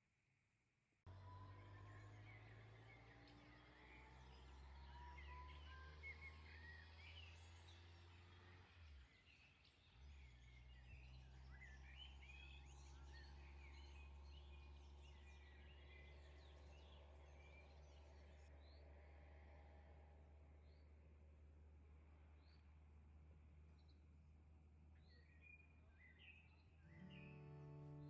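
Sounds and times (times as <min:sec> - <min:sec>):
birds chirping: 0:25.0 - 0:28.0.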